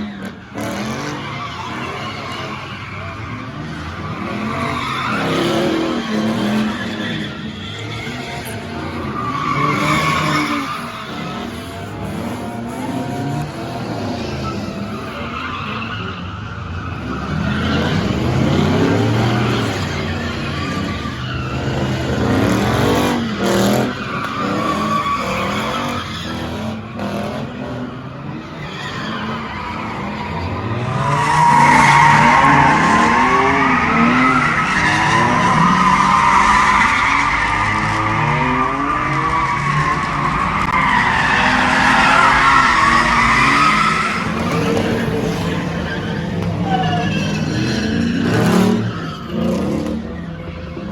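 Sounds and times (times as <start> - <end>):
tyres screeching: 0.0 - 50.9.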